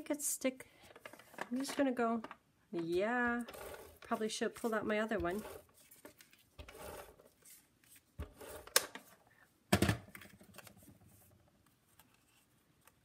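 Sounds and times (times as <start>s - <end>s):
paper rustling: 3.4s - 9.1s.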